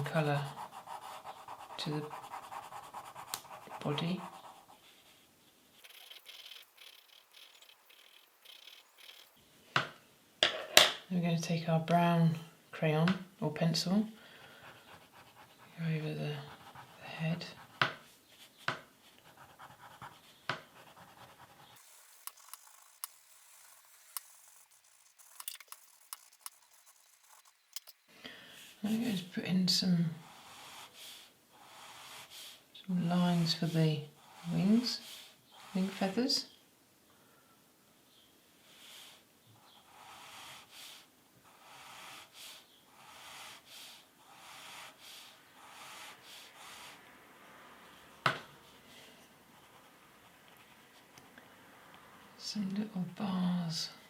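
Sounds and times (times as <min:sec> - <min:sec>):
pencil scratching on paper: 0:00.0 - 0:09.4, 0:14.5 - 0:27.9, 0:31.6 - 0:36.2, 0:39.6 - 0:40.8, 0:41.4 - 0:47.0
sharp click: 0:22.2 - 0:28.0.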